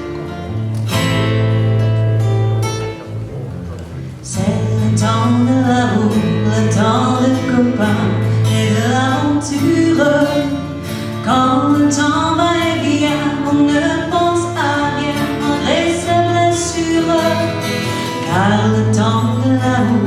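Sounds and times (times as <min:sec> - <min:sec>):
live band with guitar: 0:00.0 - 0:20.0
lead vocal singing: 0:04.2 - 0:20.0.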